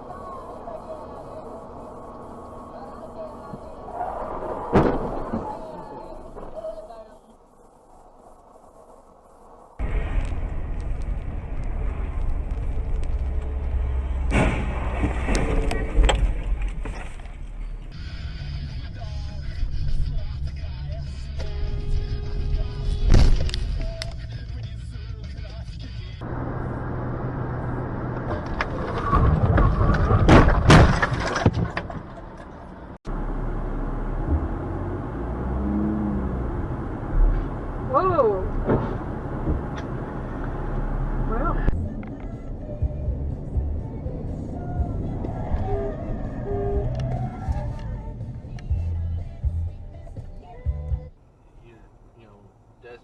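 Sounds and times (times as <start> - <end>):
car road and engine rumble: 0.0 - 53.0
car collision crunching impacts: 4.3 - 5.7, 14.0 - 17.5, 28.2 - 32.9, 38.5 - 40.6.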